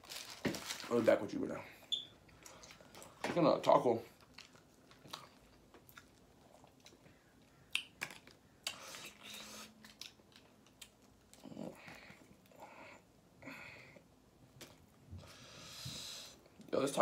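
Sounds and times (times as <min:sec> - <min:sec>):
person chewing food: 0:04.1 - 0:12.5.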